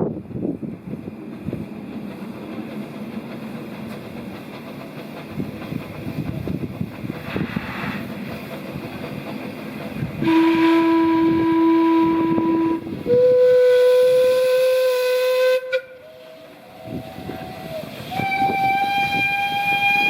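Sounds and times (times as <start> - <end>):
train rumbling clatter: 0.0 - 20.0
high-pitched train whistle: 10.2 - 20.0
low-pitched train whistle: 10.2 - 20.0.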